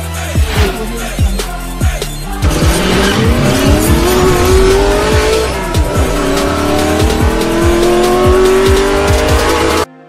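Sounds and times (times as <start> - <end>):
hip hop beat: 0.0 - 9.9
race car engine revving: 2.3 - 9.9.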